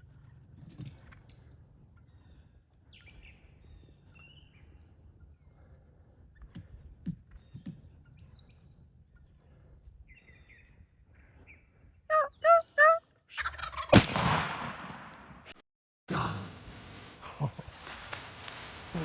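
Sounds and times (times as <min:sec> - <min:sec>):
turkey yelps: 0:12.1 - 0:14.0
shotgun blast echoing: 0:13.9 - 0:15.5.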